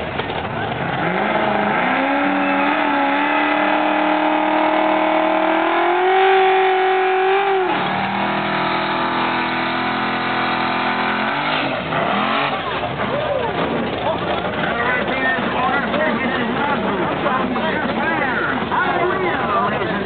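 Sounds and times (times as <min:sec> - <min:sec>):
engine revving high: 0:00.6 - 0:13.0.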